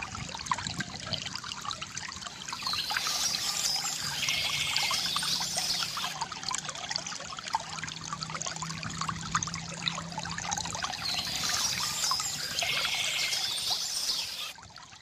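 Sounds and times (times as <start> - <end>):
stream trickling and splashing: 0.0 - 15.0
birds singing trills: 2.3 - 6.2, 10.8 - 14.6.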